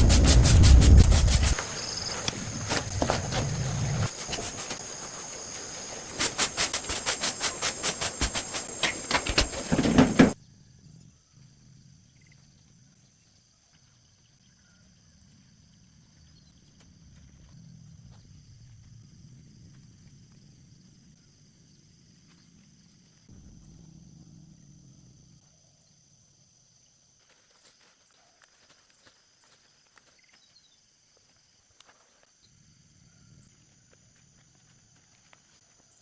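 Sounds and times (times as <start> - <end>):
high insect drone: 0.0 - 12.9.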